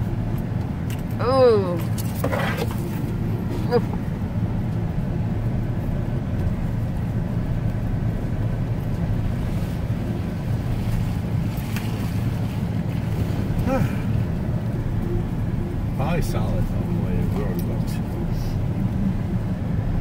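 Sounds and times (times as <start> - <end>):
truck driving over rough dirt road: 0.0 - 16.0.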